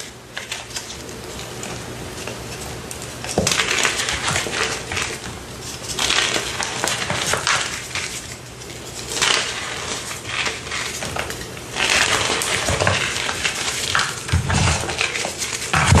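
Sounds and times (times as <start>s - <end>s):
brittle crunching: 0.0s - 16.0s.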